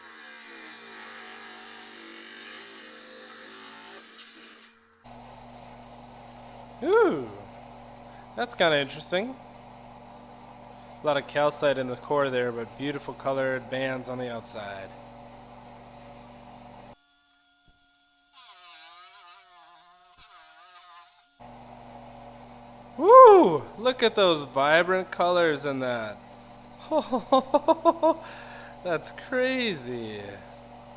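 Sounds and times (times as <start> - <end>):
rock saw cutting stone: 0.0 - 5.0, 10.5 - 15.2, 23.2 - 30.9
power tool motor whining: 18.4 - 30.9
low hum: 21.5 - 30.9.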